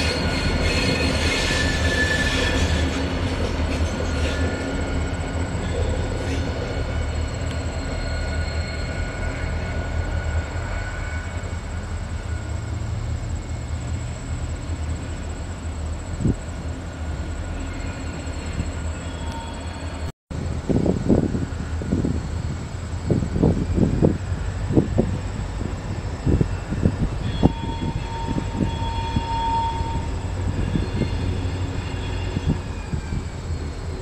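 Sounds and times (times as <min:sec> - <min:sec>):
thin wheel squeal: 0:00.0 - 0:03.0, 0:07.2 - 0:09.5, 0:26.6 - 0:33.3
freight train rumbling on rails: 0:00.0 - 0:34.0.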